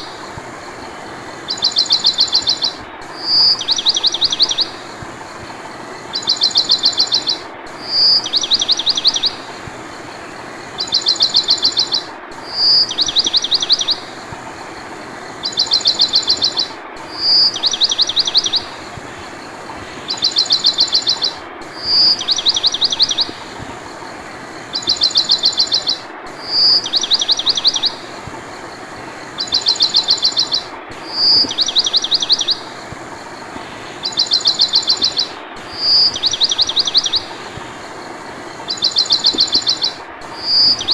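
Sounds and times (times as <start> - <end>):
steady hiss: 0.0 - 40.9
bird chirping and trilling: 1.5 - 4.9, 6.1 - 9.6, 10.2 - 14.2, 15.4 - 19.2, 19.9 - 23.6, 24.7 - 28.2, 29.0 - 33.2, 33.9 - 37.6, 38.5 - 40.9.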